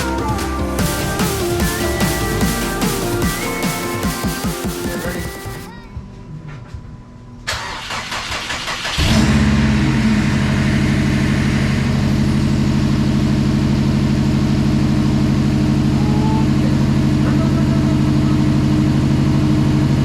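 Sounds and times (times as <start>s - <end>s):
engine cranking on starter: 7.5s - 11.8s
car engine idling: 7.8s - 20.0s.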